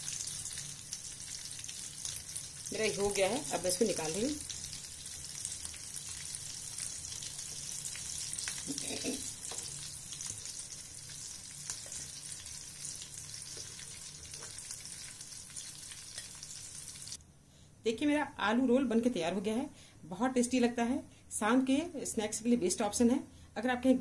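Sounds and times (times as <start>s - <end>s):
food sizzling in hot oil: 0.0s - 17.2s.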